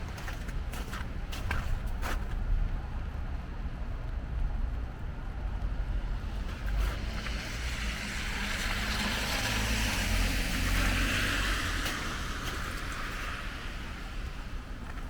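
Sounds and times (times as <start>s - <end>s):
car tyres hissing on wet road: 6.2s - 15.0s.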